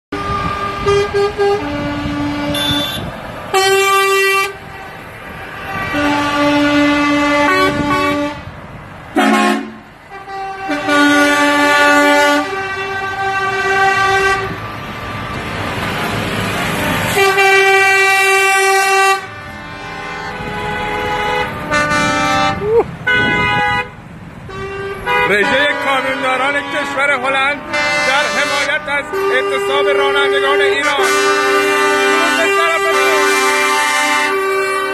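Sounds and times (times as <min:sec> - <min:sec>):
passing trucks: 0:00.1 - 0:34.9
truck air horns honking: 0:00.1 - 0:34.9.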